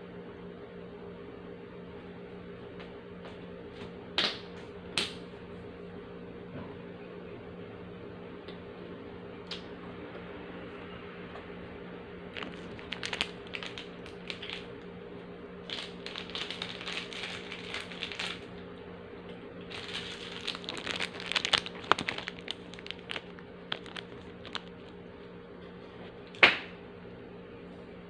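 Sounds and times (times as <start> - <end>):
crunchy biscuits being chewed: 12.3 - 14.9, 15.6 - 18.6, 19.6 - 25.1.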